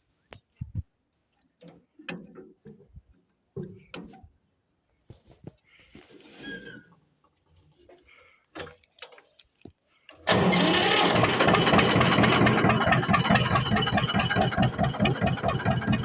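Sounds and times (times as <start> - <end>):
tractor diesel engine running: 10.2 - 16.0.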